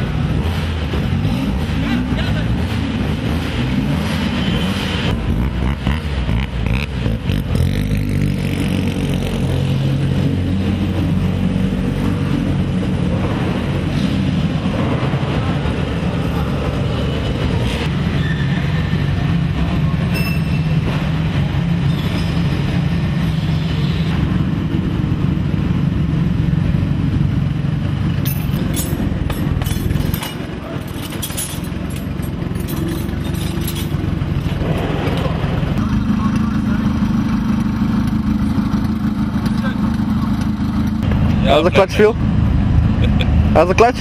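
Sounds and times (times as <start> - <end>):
car engine idling: 23.9 - 43.2.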